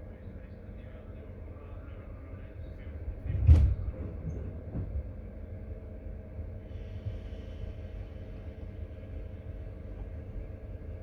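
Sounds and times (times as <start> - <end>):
railway carriage rumble: 0.0 - 11.0.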